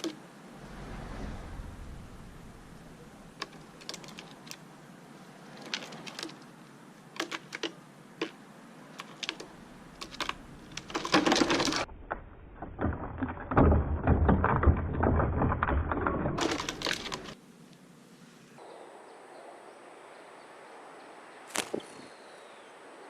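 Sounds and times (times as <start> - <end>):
small hard objects clicking: 3.4 - 4.6, 9.0 - 11.9, 12.9 - 17.4.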